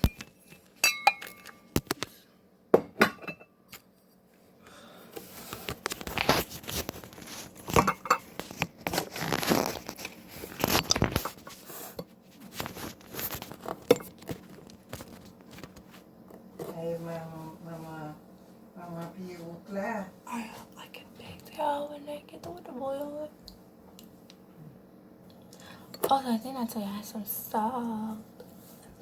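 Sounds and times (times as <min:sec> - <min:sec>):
pan and dishes clattering: 0:02.8 - 0:03.5, 0:07.6 - 0:08.6
rustling: 0:05.2 - 0:16.1.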